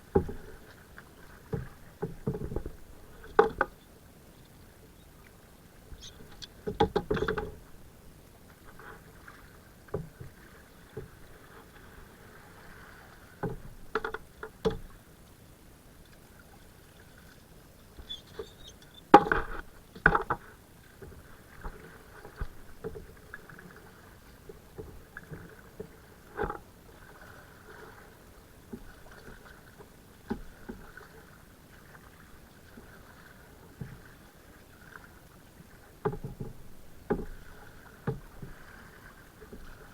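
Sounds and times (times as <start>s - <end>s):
paddle splashes: 0.0s - 39.9s
knocks on kayak hull: 0.1s - 0.5s, 6.6s - 7.6s, 19.1s - 20.4s, 36.1s - 37.5s.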